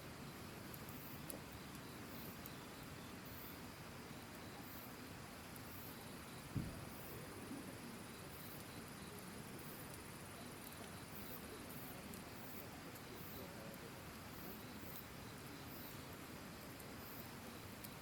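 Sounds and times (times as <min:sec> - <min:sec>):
campfire crackling: 0:00.0 - 0:18.0
insect chirping: 0:00.0 - 0:18.0.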